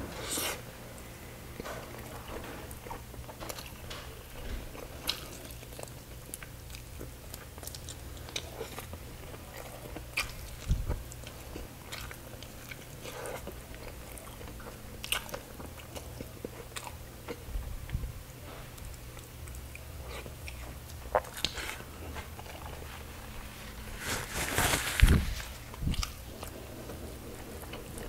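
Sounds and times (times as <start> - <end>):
person chewing: 4.8 - 17.4, 18.8 - 23.3, 25.5 - 26.5.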